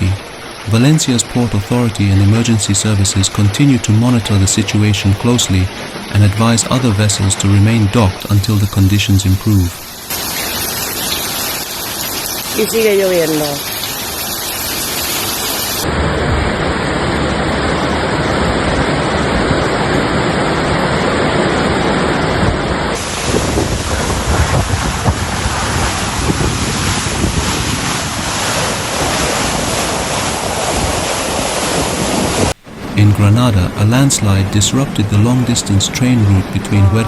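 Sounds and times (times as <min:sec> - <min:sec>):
rushing water: 0:00.0 - 0:37.0
wind buffeting microphone: 0:15.8 - 0:33.0.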